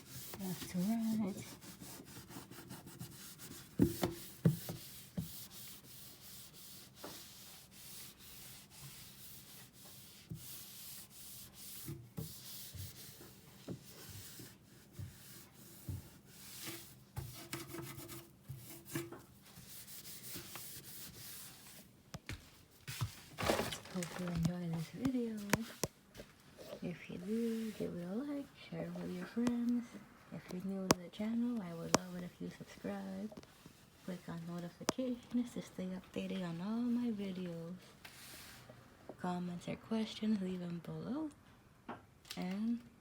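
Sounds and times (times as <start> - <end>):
wipe rubbing across counter: 0.0 - 21.9, 27.2 - 29.5, 36.8 - 38.7.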